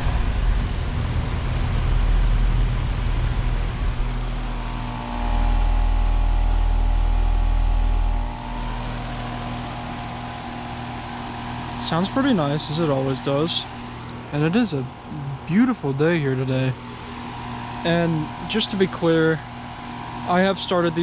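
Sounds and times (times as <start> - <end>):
low rumble: 0.0 - 10.5
heat pump humming: 0.0 - 21.0.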